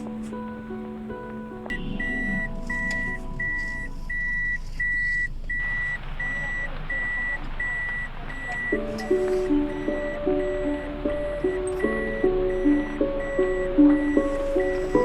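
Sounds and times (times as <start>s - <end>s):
steady hiss: 0.0s - 15.0s
electronic warning beeps: 1.7s - 15.0s.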